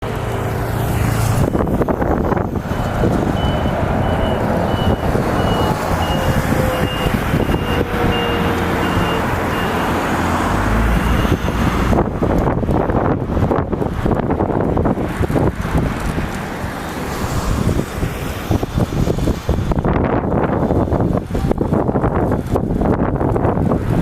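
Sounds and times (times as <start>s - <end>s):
strong wind buffeting microphone: 0.0s - 24.0s
high electronic beeps: 2.8s - 9.9s.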